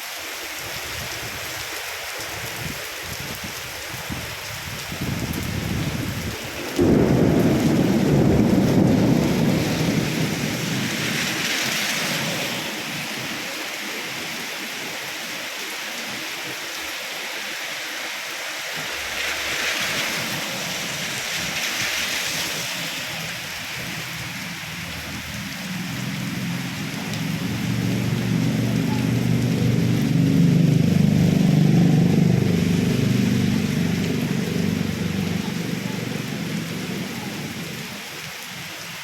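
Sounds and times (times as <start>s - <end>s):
steady rain falling: 0.0s - 39.0s
thunder clap and rumble: 5.0s - 11.4s, 24.9s - 37.6s.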